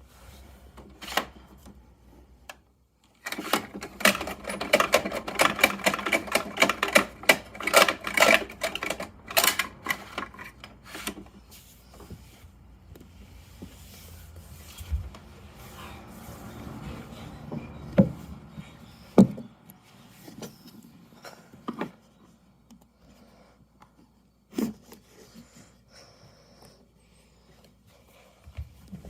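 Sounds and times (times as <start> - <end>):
toy truck plastic clicking: 2.5 - 11.2.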